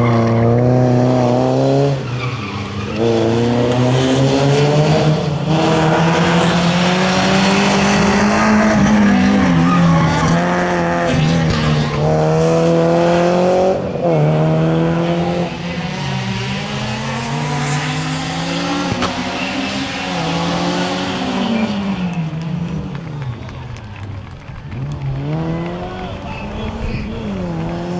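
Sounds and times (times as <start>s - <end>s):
rally car engine revving: 0.0s - 27.9s
tyres squealing: 4.2s - 12.1s.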